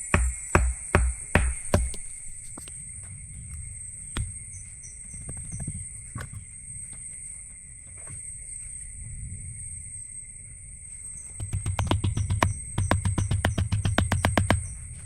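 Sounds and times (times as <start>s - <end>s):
scattered knocks: 0.0s - 2.7s, 11.4s - 15.0s
insect chorus drone: 0.0s - 15.0s.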